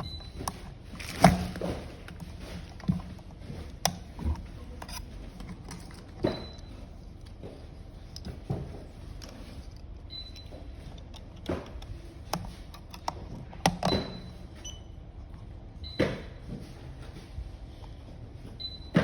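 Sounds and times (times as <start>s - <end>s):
clicks and knocks of handling: 0.0s - 14.3s
steady low hum: 0.0s - 19.0s.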